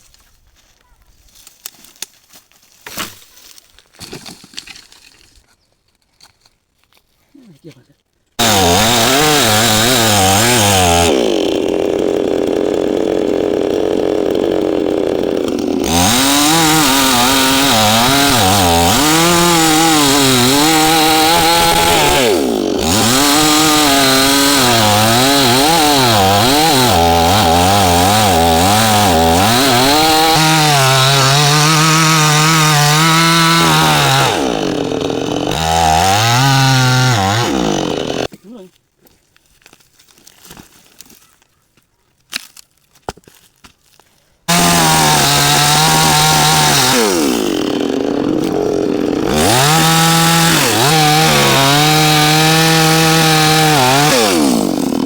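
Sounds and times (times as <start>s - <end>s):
chainsaw cutting wood: 8.4s - 38.4s, 44.5s - 55.0s.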